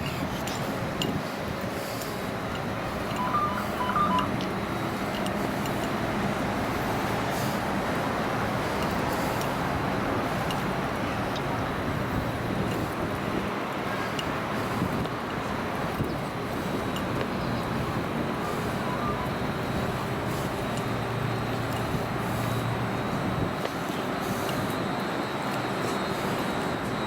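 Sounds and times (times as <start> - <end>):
train running: 0.0 - 27.0
high electronic beeps: 3.1 - 4.5.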